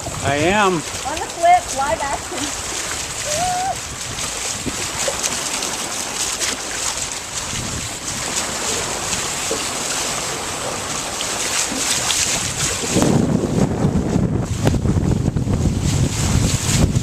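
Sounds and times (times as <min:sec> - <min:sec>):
wind and water rushing: 0:00.0 - 0:17.0
wind buffeting microphone: 0:00.0 - 0:17.0.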